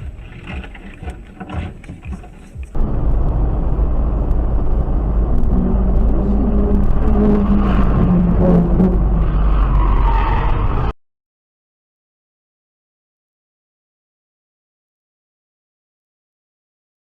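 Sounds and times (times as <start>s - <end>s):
car engine and road noise: 0.0s - 11.0s
loud low rumble: 2.8s - 9.8s.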